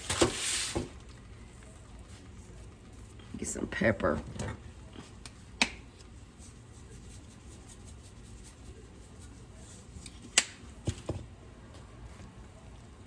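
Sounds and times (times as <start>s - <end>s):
low steady background noise: 0.0s - 13.0s.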